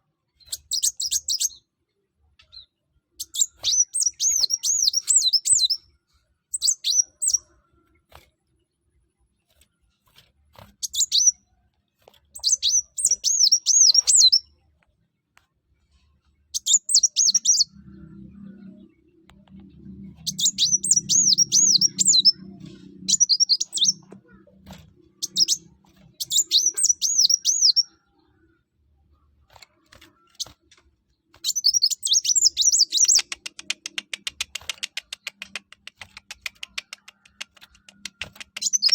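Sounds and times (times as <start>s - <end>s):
sunbird warbling song: 2.4s - 5.9s, 12.4s - 14.5s, 16.5s - 28.6s, 31.4s - 33.8s, 38.4s - 38.9s.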